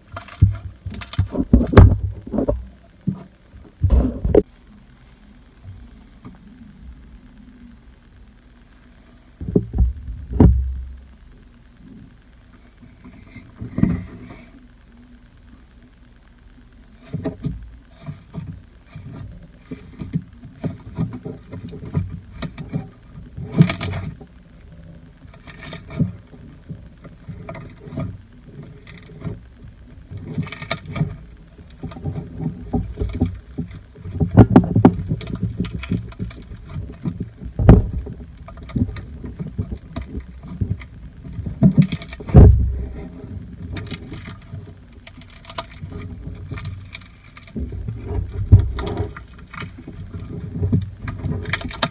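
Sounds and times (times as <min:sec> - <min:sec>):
low thumps: 0:00.8 - 0:04.6, 0:09.4 - 0:11.6, 0:34.2 - 0:43.9.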